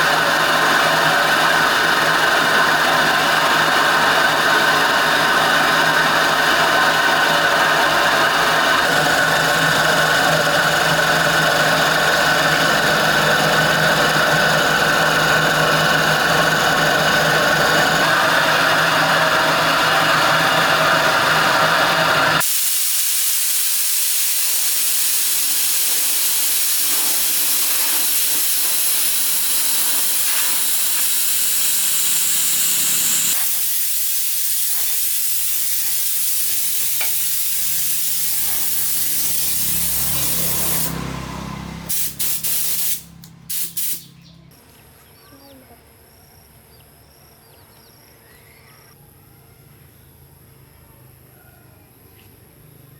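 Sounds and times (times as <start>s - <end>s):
air compressor humming: 0.0s - 44.7s
compressed air spraying hiss: 22.4s - 41.0s, 41.9s - 44.1s.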